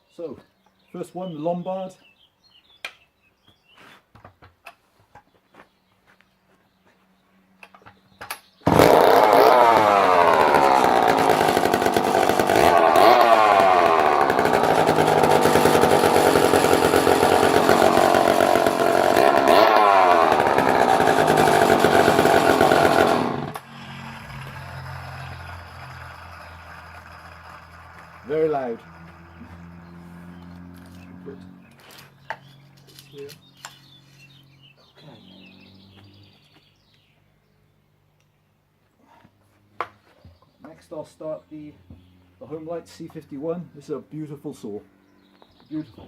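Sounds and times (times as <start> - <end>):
chainsaw engine revving: 8.6 - 31.8.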